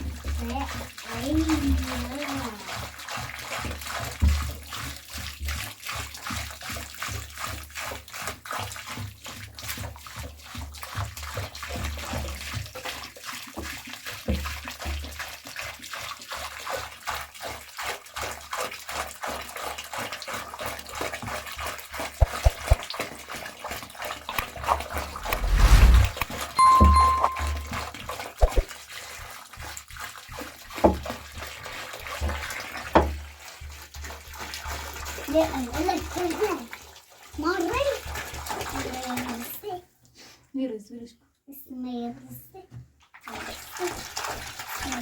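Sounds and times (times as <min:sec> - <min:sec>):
water splashing in soil: 0:22.0 - 0:23.0.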